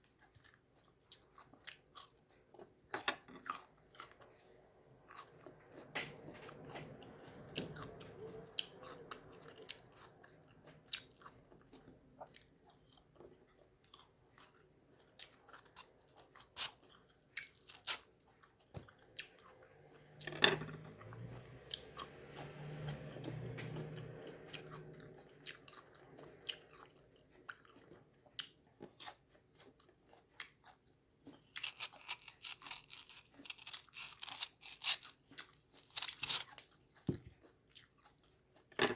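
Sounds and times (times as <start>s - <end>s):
person chewing crunchy fruit: 0.0s - 38.8s.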